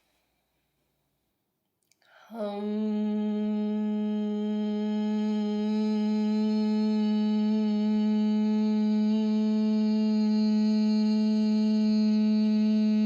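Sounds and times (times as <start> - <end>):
soft breath: 0.0 - 0.8
woman humming a long note: 2.2 - 13.0.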